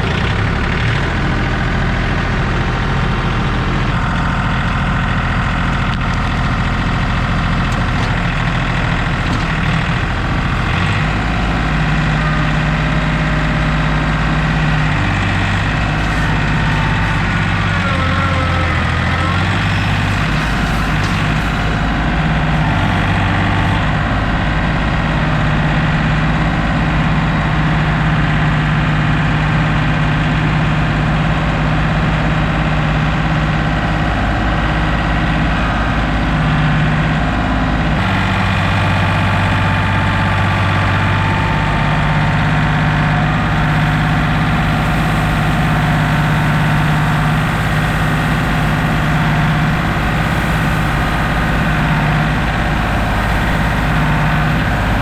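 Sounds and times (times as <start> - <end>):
heavy machinery engine running: 0.0 - 55.0.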